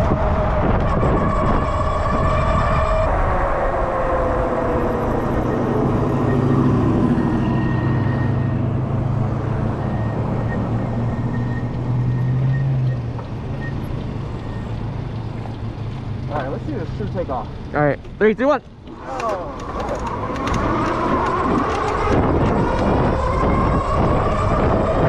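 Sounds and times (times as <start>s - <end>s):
wind noise: 0.0s - 17.0s, 18.8s - 25.0s
electric bike motor whining: 18.8s - 25.0s.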